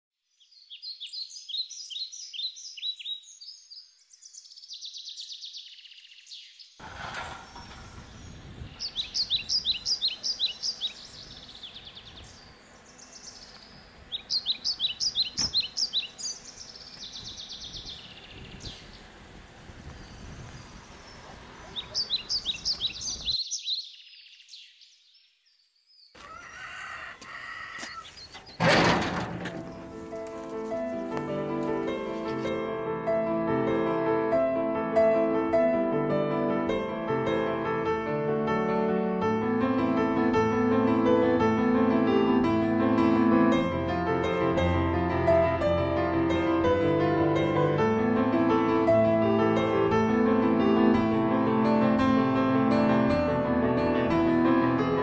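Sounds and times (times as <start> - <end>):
songbird singing high chirps: 0.2 - 6.8, 7.9 - 19.1, 19.8 - 28.6
outdoor background hiss: 0.2 - 32.5.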